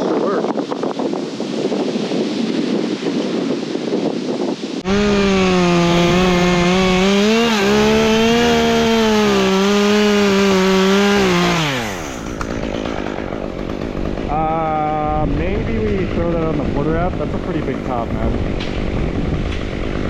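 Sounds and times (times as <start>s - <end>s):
wind noise on microphone: 0.0s - 20.0s
chainsaw revving: 4.8s - 14.7s.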